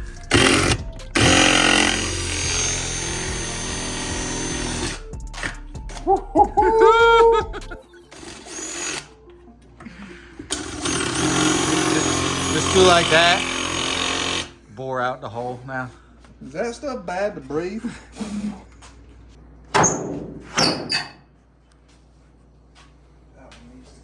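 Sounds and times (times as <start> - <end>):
power drill whining: 0.0 - 5.0, 10.5 - 14.6.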